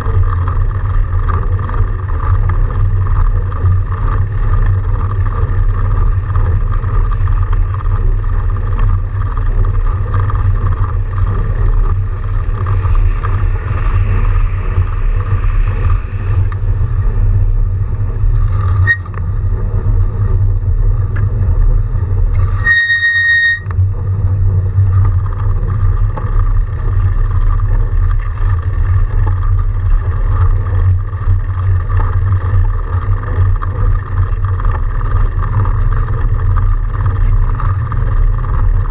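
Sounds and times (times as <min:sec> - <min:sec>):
bike riding rumble: 0:00.0 - 0:38.9
wind on microphone: 0:00.0 - 0:38.9
short high beep: 0:22.6 - 0:23.7.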